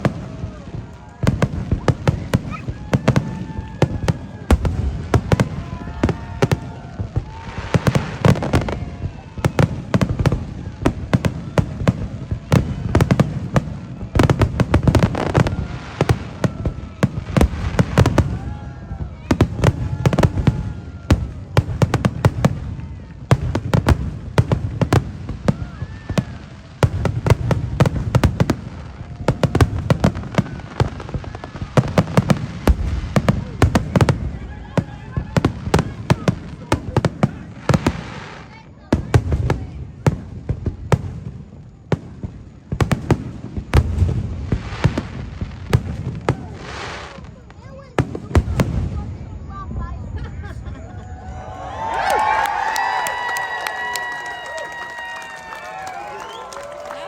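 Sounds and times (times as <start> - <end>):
firework shells booming: 0.0 - 38.2
firework crackling: 0.0 - 50.4, 51.1 - 57.0.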